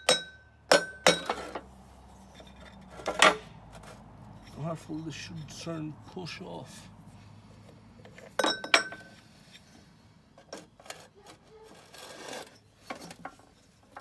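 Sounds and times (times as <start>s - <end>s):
metal tools clinking: 0.0s - 5.7s, 8.1s - 9.7s.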